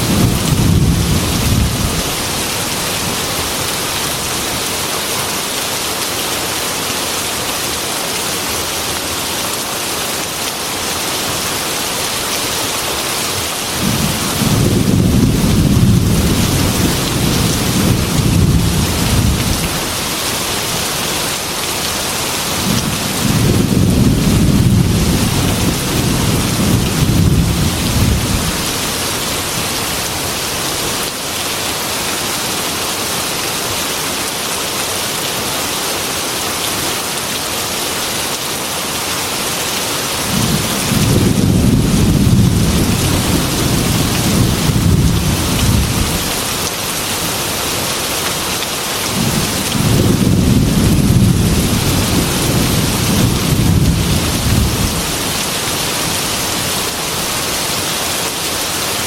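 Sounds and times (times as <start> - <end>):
rolling thunder: 0.0 - 2.1, 13.8 - 19.8, 22.6 - 28.8, 40.3 - 46.2, 49.2 - 55.1
heavy rain on window: 0.0 - 31.9, 36.4 - 59.0.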